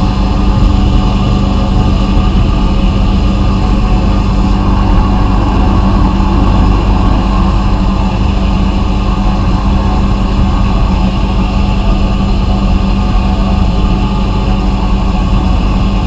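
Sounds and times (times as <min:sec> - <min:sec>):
low motor hum: 0:00.0 - 0:16.0.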